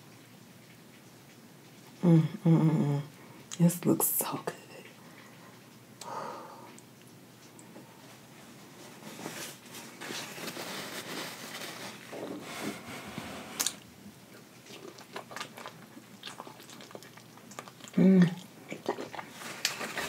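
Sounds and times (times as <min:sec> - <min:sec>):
wet chewing and biting: 0:13.6 - 0:20.0.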